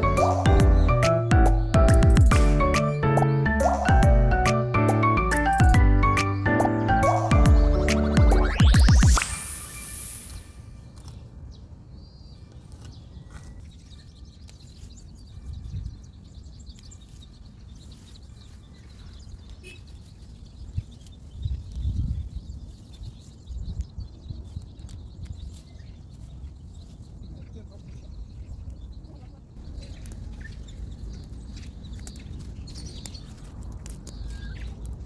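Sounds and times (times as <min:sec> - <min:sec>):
wind gusts on microphone: 0:20.6 - 0:25.5.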